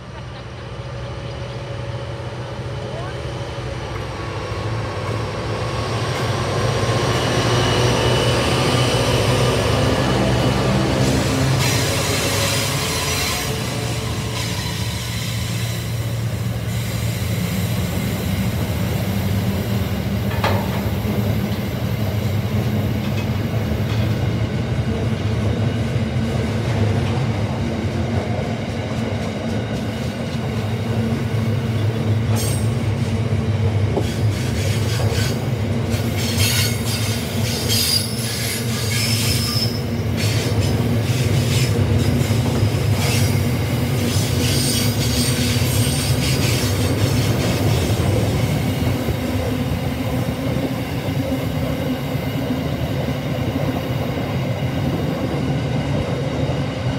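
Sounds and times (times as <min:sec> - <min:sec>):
steel train wheels rumbling on rail: 0:00.0 - 0:56.9
high-pitched wheel squeals: 0:36.2 - 0:40.4.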